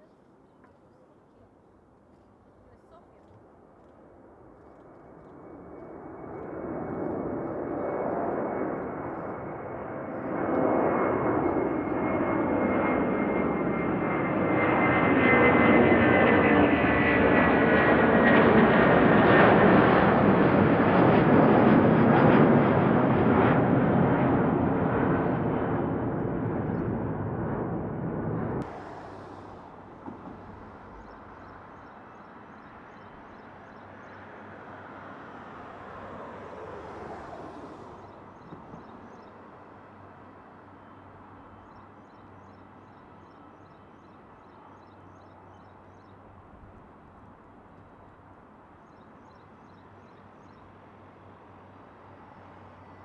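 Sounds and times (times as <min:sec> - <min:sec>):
jet airliner passing: 0:03.5 - 0:47.4.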